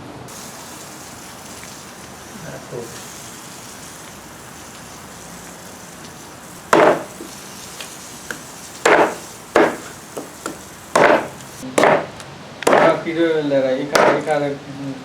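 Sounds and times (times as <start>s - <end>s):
heavy chopping into wood: 6.8s - 7.1s, 8.9s - 9.9s, 10.5s - 13.0s, 14.0s - 14.3s.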